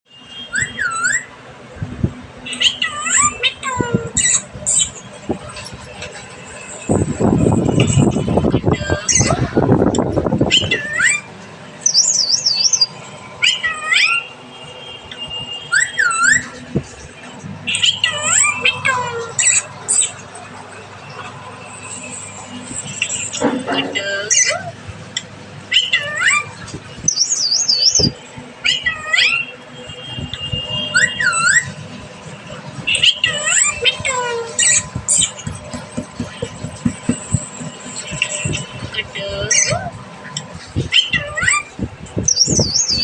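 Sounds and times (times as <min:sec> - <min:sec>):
parrot whistling calls: 0:00.4 - 0:01.3, 0:10.5 - 0:14.3, 0:15.7 - 0:16.6, 0:25.7 - 0:29.5, 0:30.4 - 0:31.8, 0:40.8 - 0:43.0.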